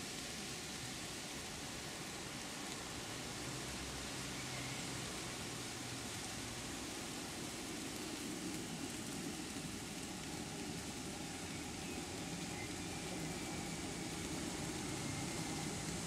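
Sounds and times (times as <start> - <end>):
even hiss: 0.0 - 16.0
train low hum: 5.2 - 16.0.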